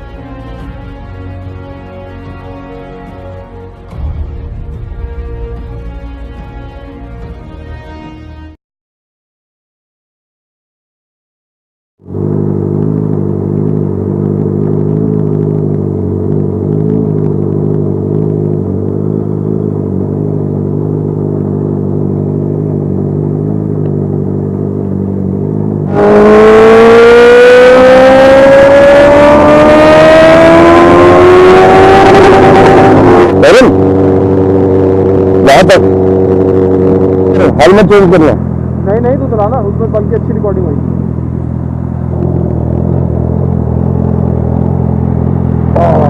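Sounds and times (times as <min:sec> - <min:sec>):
motorcycle accelerating: 0:00.0 - 0:08.4, 0:12.0 - 0:46.0.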